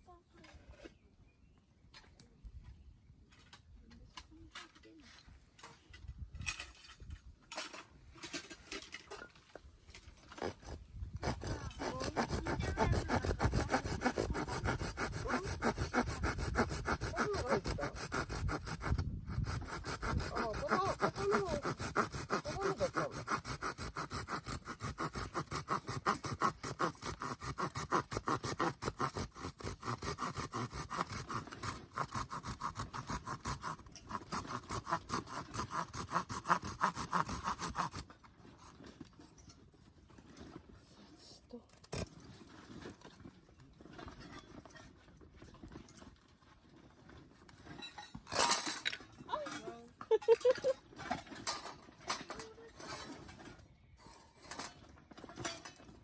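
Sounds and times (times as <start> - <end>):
saw cutting through branch: 10.3 - 38.8.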